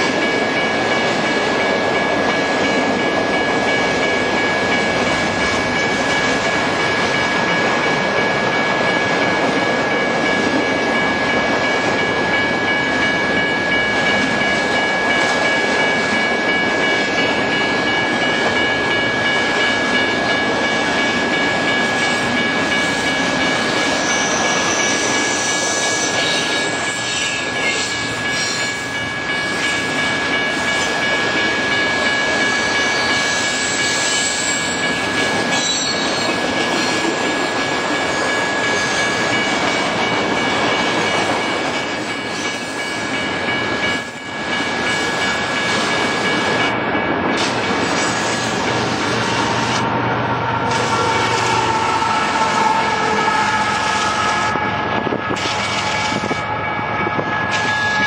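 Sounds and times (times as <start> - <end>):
crossing signal bell ringing: 0.0 - 47.3, 50.5 - 58.0
freight train rumble and clatter: 0.0 - 58.0
high wheel squeals: 23.8 - 28.8.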